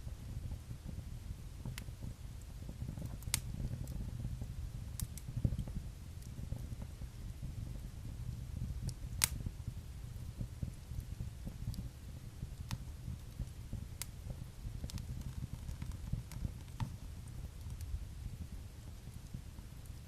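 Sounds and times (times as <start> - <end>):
fire crackles and pops: 0.0 - 20.0
fire flames rumbling: 0.0 - 20.0.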